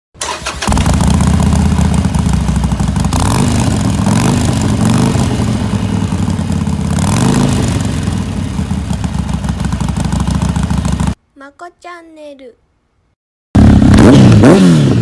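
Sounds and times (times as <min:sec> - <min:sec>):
motorcycle engine idling loudly: 0:00.6 - 0:11.2.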